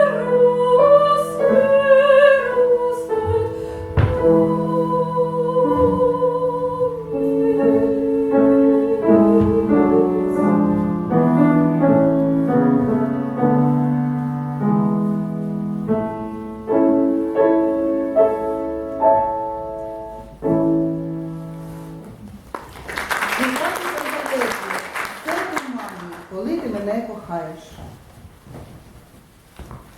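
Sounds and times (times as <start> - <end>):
woman singing with vibrato: 0.0 - 11.2
grand piano: 0.0 - 29.9.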